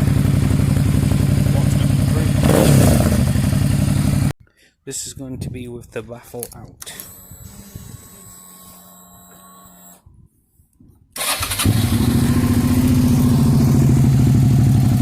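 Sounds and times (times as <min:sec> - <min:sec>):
motorcycle engine idling: 0:00.0 - 0:04.3, 0:11.7 - 0:15.0.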